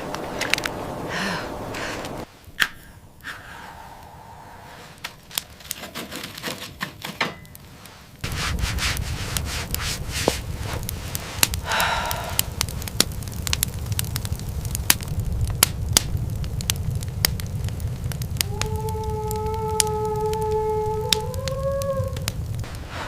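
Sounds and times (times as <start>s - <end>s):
dense crackling: 0.0s - 23.0s
rubbing and scraping: 4.8s - 11.6s
low rumble: 8.2s - 23.0s.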